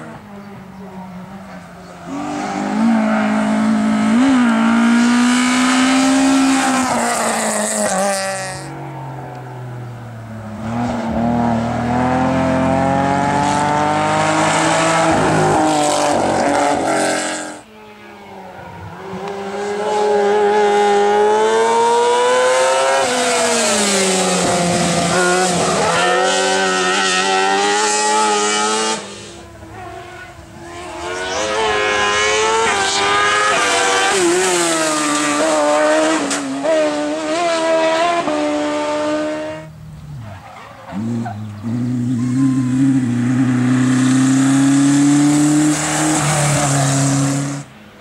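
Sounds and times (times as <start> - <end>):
racing car engines revving: 0.0 - 48.0.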